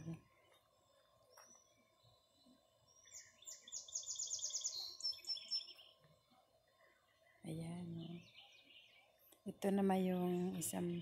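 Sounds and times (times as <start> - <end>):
songbird chirping: 0.0 - 11.0
bird trill: 2.9 - 6.0.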